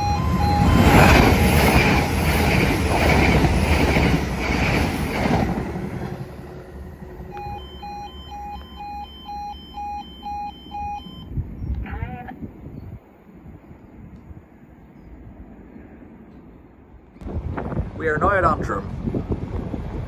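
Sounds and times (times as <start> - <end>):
two-tone crossing alarm beeps: 0.0 - 4.2, 7.0 - 11.4
train wheels clattering: 0.1 - 7.4.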